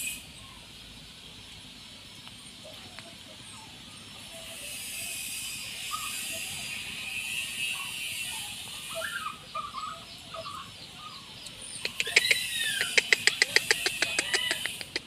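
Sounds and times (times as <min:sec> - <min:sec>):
arching bird call: 0:07.3 - 0:15.0
fast sharp clicks: 0:11.8 - 0:15.0.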